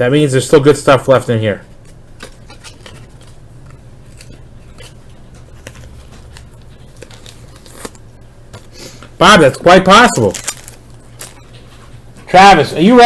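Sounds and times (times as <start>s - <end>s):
steady low hum: 0.0s - 13.0s
cards clicking and rustling: 1.8s - 9.1s, 10.0s - 11.7s.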